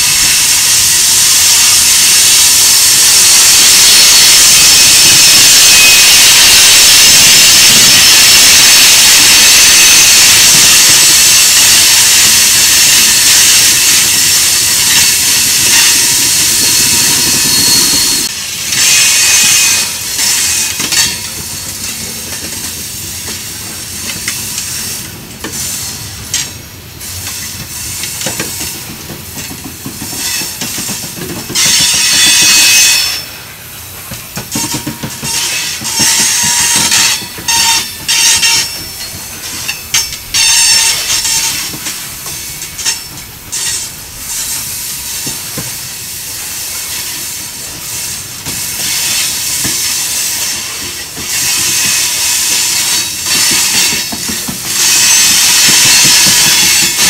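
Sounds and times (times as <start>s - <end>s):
train wheels hissing on rails: 0.0s - 57.0s
thin wheel squeals: 12.8s - 21.1s.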